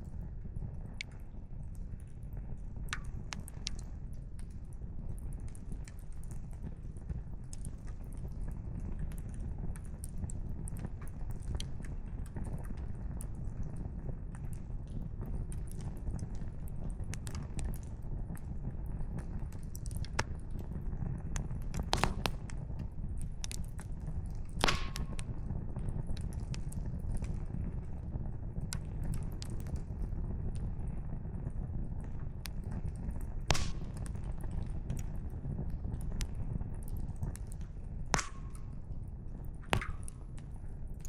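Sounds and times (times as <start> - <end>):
campfire crackling: 1.3 - 30.7, 32.0 - 41.0
burning firewood popping: 14.4 - 30.7, 31.5 - 41.0.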